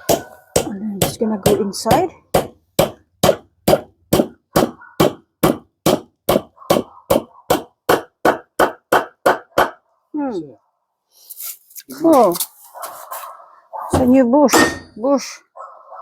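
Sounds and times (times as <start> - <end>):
brass hammer striking metal: 14.5 - 15.0.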